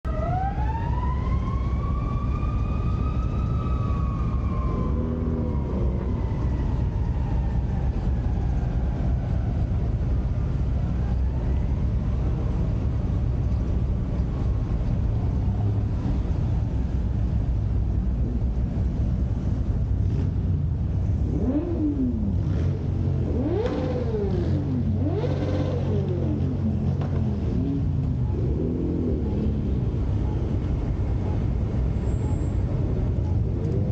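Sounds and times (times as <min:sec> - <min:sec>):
car engines and road noise: 0:00.0 - 0:33.9
distant siren wailing: 0:00.1 - 0:13.2, 0:21.3 - 0:33.9
engine revving: 0:21.2 - 0:29.7.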